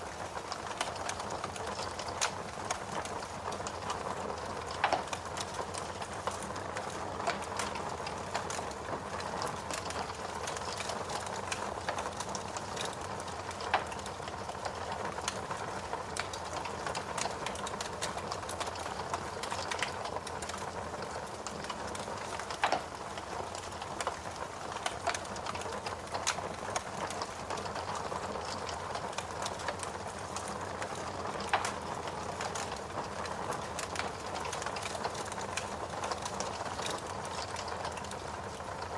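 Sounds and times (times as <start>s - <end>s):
wood crackling in fireplace: 0.0s - 38.9s.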